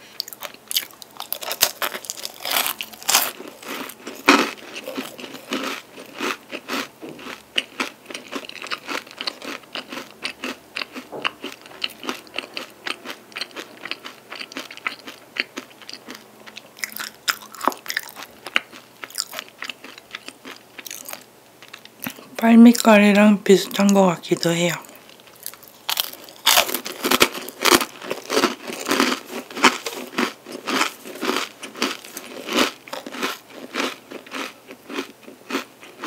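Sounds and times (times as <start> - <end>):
crunching bites of flaky pastry: 0.2 - 16.2, 25.1 - 36.0.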